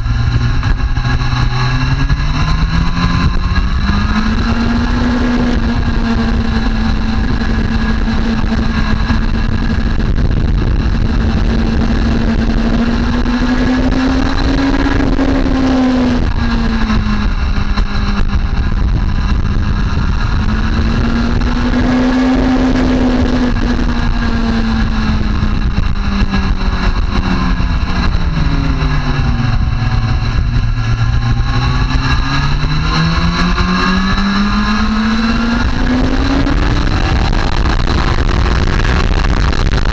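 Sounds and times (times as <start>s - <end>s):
motorcycle engine revving: 0.0s - 39.9s
steady rushing noise: 0.0s - 39.9s.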